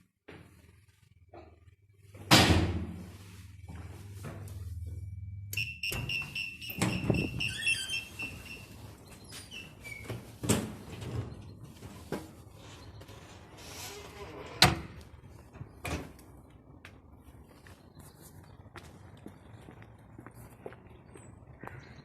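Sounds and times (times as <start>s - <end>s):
low motor hum: 3.4s - 5.6s.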